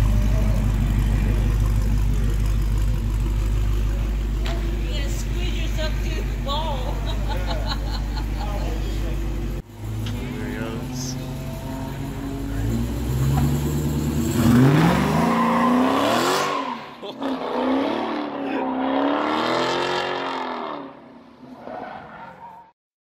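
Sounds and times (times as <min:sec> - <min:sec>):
race car engine accelerating: 0:08.5 - 0:21.0.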